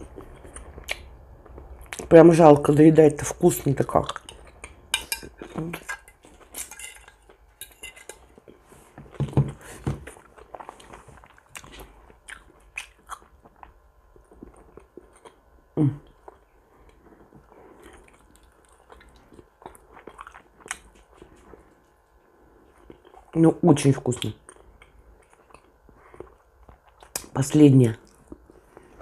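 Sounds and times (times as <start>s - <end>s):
chewing meat: 0.0s - 2.1s, 10.1s - 23.4s, 24.1s - 27.3s.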